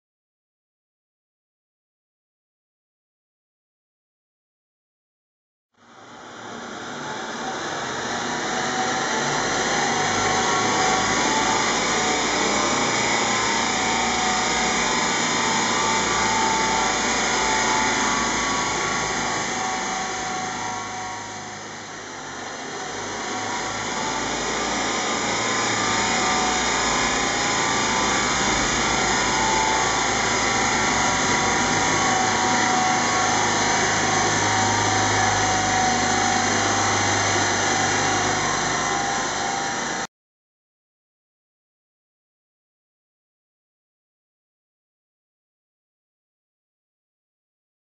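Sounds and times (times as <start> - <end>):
engine on dynamometer whirring: 5.8 - 40.1.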